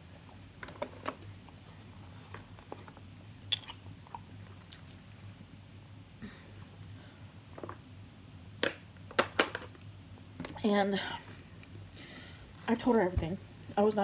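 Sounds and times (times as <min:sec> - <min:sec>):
person chewing food: 0:03.4 - 0:05.1.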